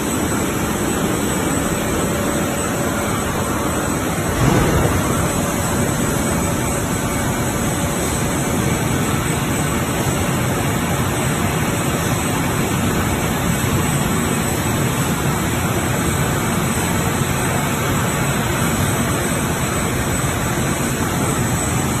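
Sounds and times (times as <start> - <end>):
faint high whine: 0.0 - 10.2
washing machine running: 0.0 - 22.0.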